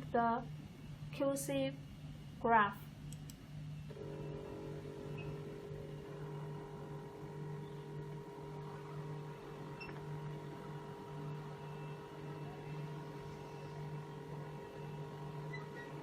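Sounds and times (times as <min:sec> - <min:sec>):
pulsing low hum: 0:03.7 - 0:16.0
printer motor whine: 0:03.9 - 0:16.0.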